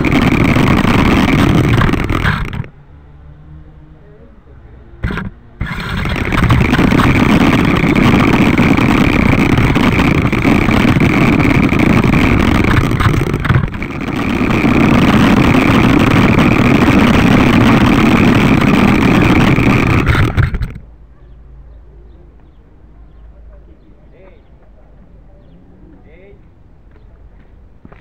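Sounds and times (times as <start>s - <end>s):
remote-control motorcycle motor: 0.0s - 2.8s, 4.9s - 20.9s.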